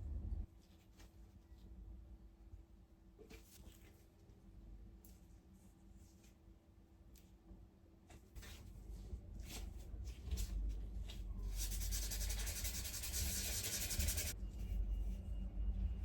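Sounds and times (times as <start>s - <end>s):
sanding strokes on a surface: 11.5s - 14.4s.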